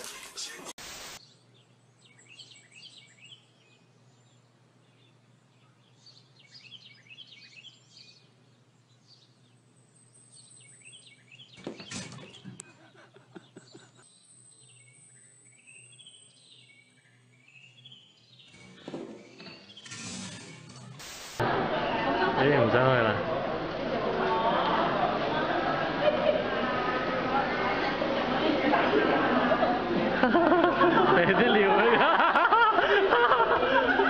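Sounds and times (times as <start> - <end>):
faint bird chirping: 1.2 - 20.0.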